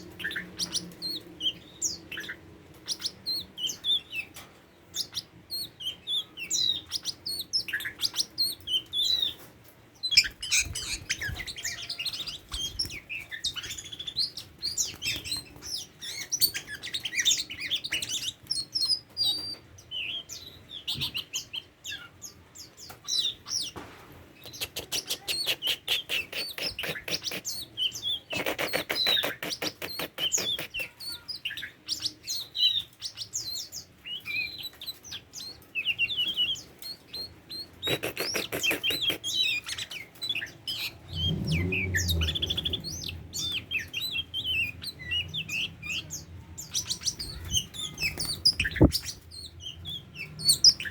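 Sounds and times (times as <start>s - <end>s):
bird singing whistles and chirps: 24.5s - 50.9s.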